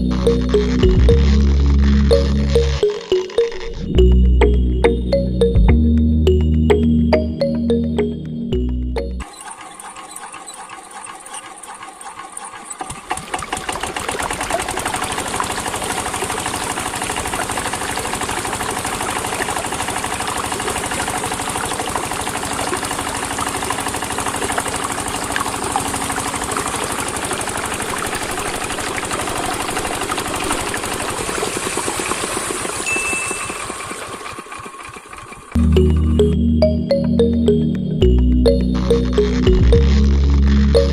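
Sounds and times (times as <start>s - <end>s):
small motor running: 9.2s - 35.6s.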